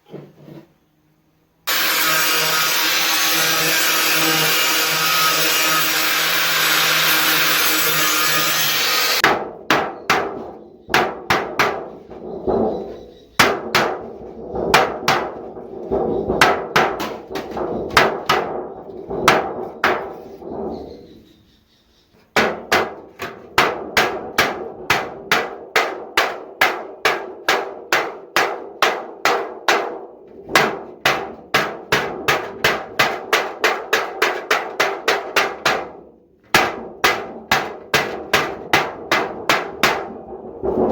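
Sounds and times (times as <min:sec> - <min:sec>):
disc grinder rasping: 0:01.7 - 0:09.2
hammer striking sheet metal: 0:01.7 - 0:20.8, 0:22.4 - 0:40.9.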